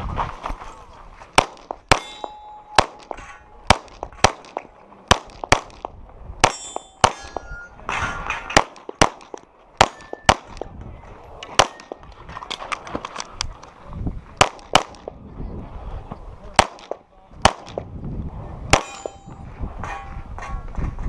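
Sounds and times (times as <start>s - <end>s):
pistol gunshots: 1.4s - 7.5s, 8.4s - 10.7s, 14.4s - 15.2s, 16.6s - 17.9s, 18.7s - 19.2s
steel targets clanging: 1.9s - 3.6s, 6.4s - 8.9s, 9.8s - 10.6s, 18.8s - 20.6s.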